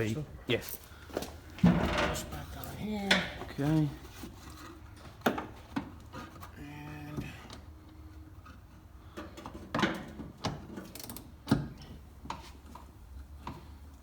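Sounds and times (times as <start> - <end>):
knocks and clicks of car part: 9.2 - 13.7.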